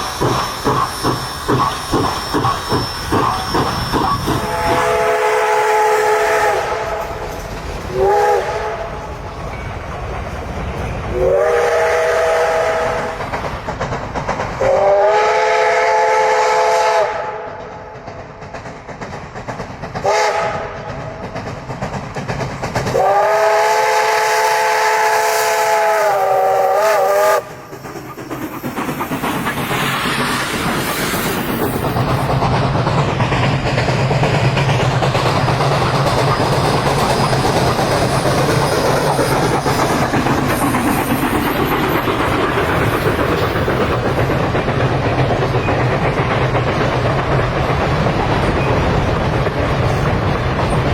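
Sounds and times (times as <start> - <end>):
steam locomotive whistle: 0.0 - 7.2, 7.9 - 9.1, 11.1 - 13.2, 14.6 - 17.7, 20.0 - 20.9, 22.9 - 27.7
train wheels rumbling on rails: 0.0 - 50.9.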